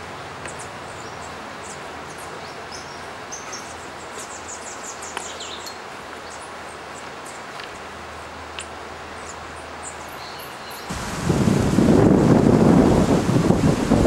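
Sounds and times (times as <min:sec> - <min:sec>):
steady background hiss: 0:00.0 - 0:14.0
small birds chirping: 0:00.4 - 0:11.0.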